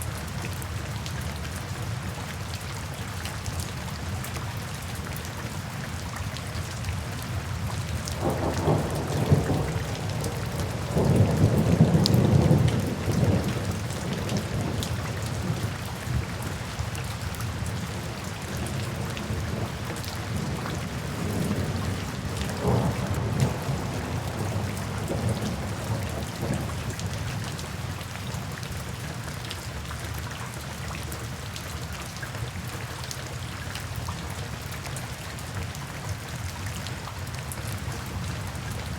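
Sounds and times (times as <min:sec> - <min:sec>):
steady rain: 0:00.0 - 0:38.9
rolling thunder: 0:08.2 - 0:15.6, 0:20.3 - 0:26.9.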